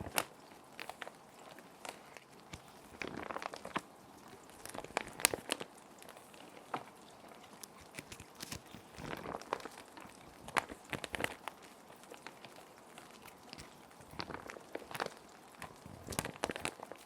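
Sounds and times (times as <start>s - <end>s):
soft steady rain: 0.0s - 17.0s
plastic sheet protectors crinkling: 7.4s - 17.0s.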